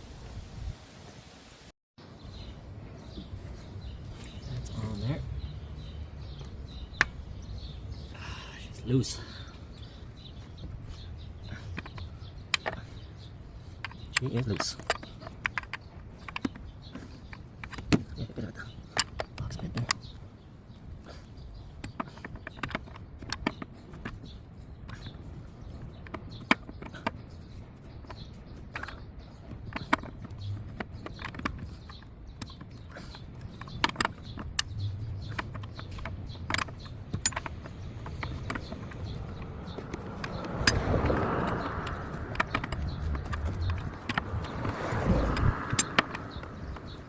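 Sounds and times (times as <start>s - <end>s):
rubbing and scraping: 20.9s - 47.0s
metallic clicks of hand tools: 28.0s - 47.0s.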